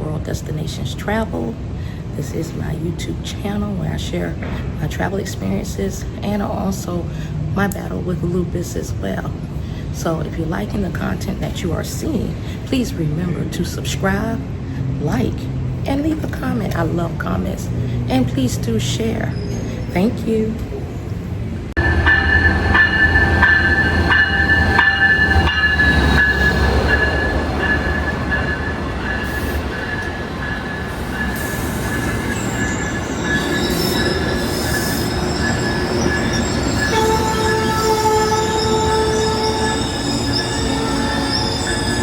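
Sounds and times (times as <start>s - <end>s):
train rumble: 0.0s - 42.0s
train knocks: 21.8s - 42.0s
train wheels squealing: 21.8s - 42.0s.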